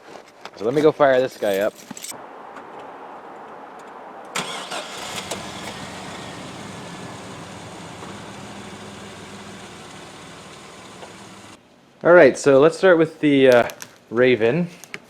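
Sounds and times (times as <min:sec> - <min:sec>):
pickup engine idling: 0:04.4 - 0:11.6
starter motor cranking: 0:04.4 - 0:11.6.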